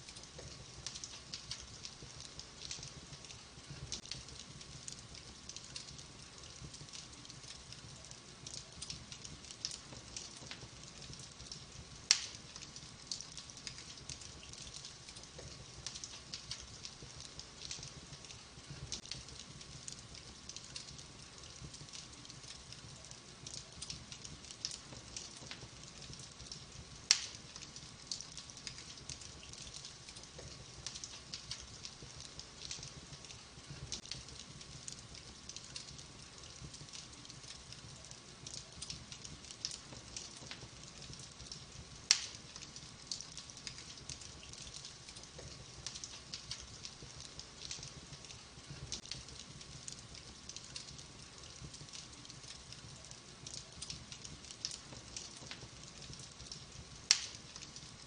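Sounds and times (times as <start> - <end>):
wood fire crackling: 0.0 - 58.0
loud sharp fire pops: 12.1 - 12.4, 27.1 - 27.4, 42.1 - 42.6, 57.1 - 57.7.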